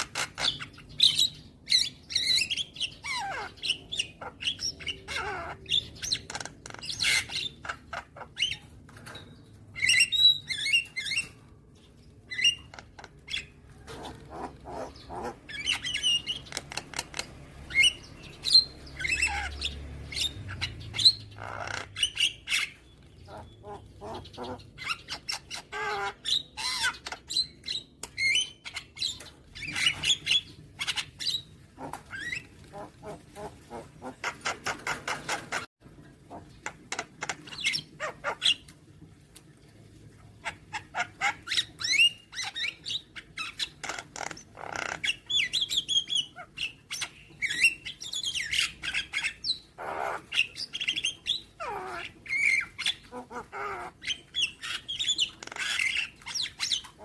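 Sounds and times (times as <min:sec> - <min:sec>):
myna calling: 0:51.6 - 0:57.0.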